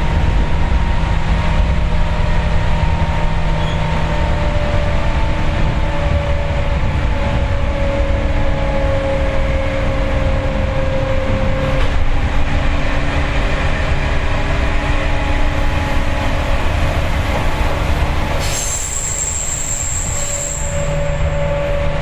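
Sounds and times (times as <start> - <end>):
train wheel and motor rumble: 0.0 - 22.0
high-pitched wheel squeal: 3.5 - 4.7, 18.2 - 22.0.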